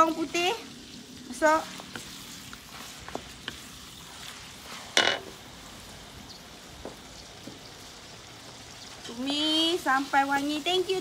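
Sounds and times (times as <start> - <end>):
food frying in oil: 0.0 - 11.0
wooden spatula stirring: 1.4 - 5.5.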